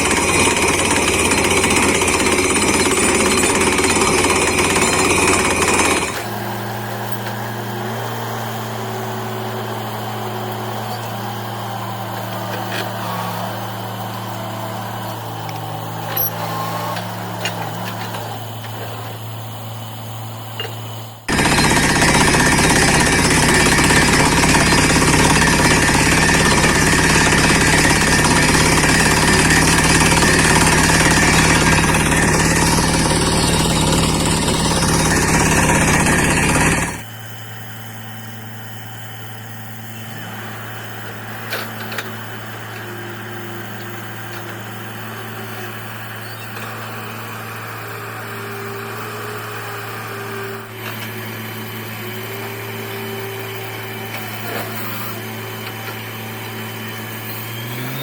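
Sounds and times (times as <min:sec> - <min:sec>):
drilling rig hammer-drilling: 0:00.0 - 0:58.0
engine humming: 0:00.0 - 0:58.0.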